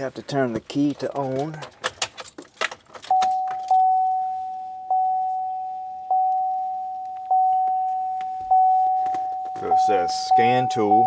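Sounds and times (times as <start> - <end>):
dashboard warning chime: 3.1 - 11.0.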